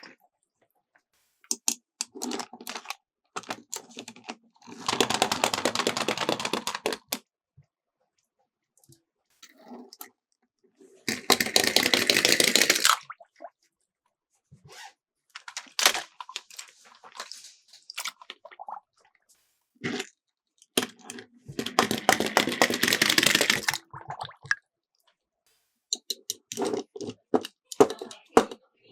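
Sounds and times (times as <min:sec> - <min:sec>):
toy cars rattling down plastic track: 0:02.0 - 0:07.2, 0:11.1 - 0:13.0, 0:20.8 - 0:23.8.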